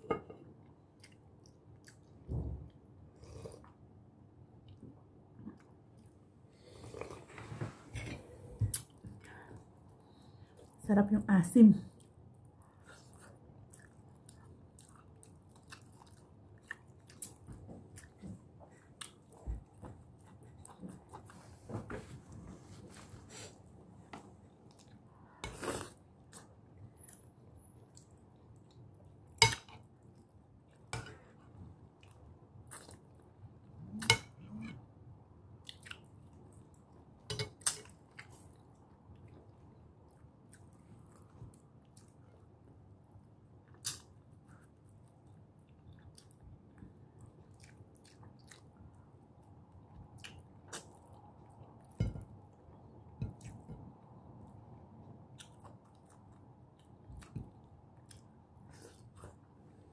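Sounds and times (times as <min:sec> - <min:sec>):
chewing and lip smacking: 0:12.0 - 0:21.4, 0:43.6 - 0:59.5.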